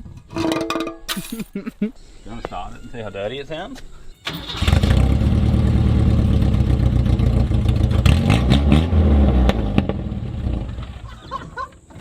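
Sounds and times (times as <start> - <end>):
exhaust pops: 4.3 - 11.1
car engine running loud: 4.5 - 11.0.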